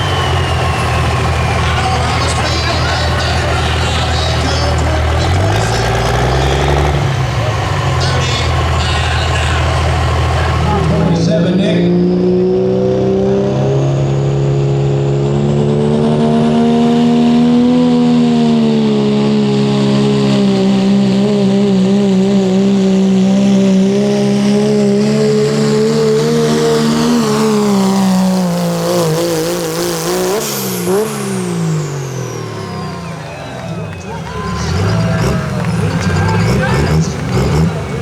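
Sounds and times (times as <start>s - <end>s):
faint high whistle: 0.0s - 2.8s
truck engine revving at full throttle: 0.0s - 38.0s.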